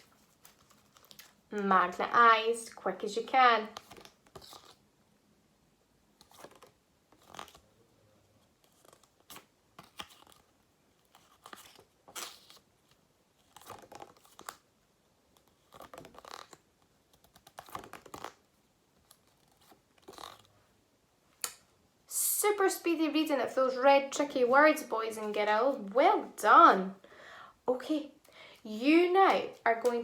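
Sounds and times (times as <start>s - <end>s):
paper flashcards rustling: 0.0s - 2.0s, 3.2s - 4.8s, 6.2s - 7.6s, 8.4s - 14.7s, 15.3s - 20.5s, 28.5s - 30.0s.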